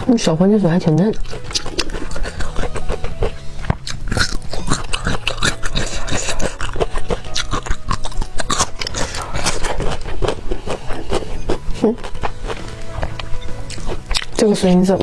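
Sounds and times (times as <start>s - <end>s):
faint background music: 0.0s - 15.0s
crunchy chewing: 0.8s - 14.8s.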